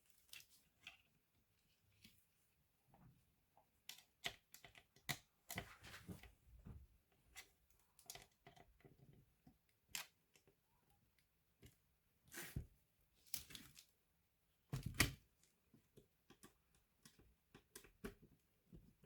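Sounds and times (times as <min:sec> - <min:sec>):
soft rustles: 0:05.6 - 0:06.7
faint clicks and taps of laptop parts: 0:14.7 - 0:19.0.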